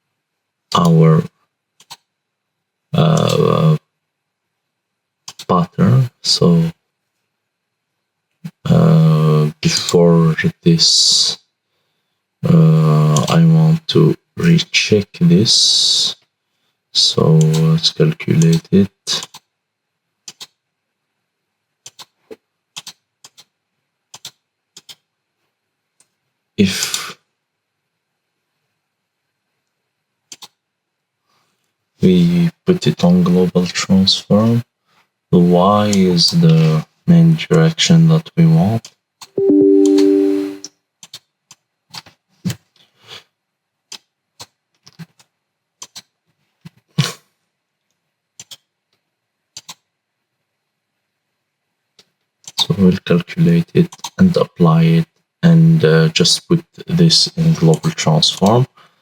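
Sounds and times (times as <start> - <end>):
computer mouse clicking: 1.8 - 2.0, 5.3 - 5.5, 20.2 - 20.6, 21.8 - 22.2, 22.8 - 23.5, 24.1 - 25.0, 30.3 - 30.6, 41.0 - 42.1, 43.9 - 46.1, 48.4 - 48.7, 49.6 - 49.8.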